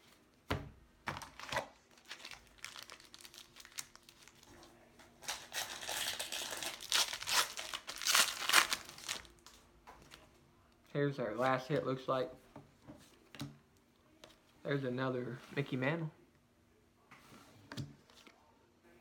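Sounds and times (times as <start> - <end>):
plastic wrapper crinkling: 1.2 - 4.6, 5.2 - 9.6.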